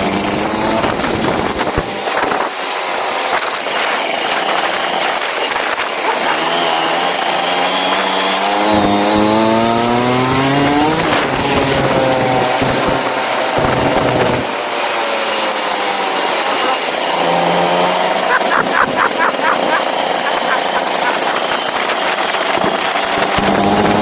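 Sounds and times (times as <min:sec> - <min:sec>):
go-kart engine accelerating: 0:00.0 - 0:24.0.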